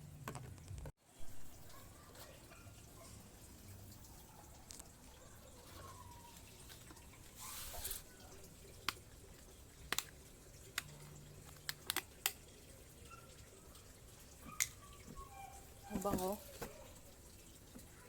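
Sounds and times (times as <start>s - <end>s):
plastic rustling: 5.6s - 9.5s.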